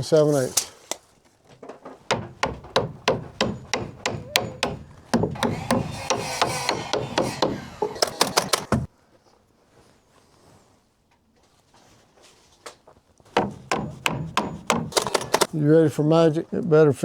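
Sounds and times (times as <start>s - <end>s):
rubbing and scraping: 0.0s - 0.9s, 1.8s - 8.9s
hammer blows on wood: 2.1s - 8.9s, 13.4s - 15.5s.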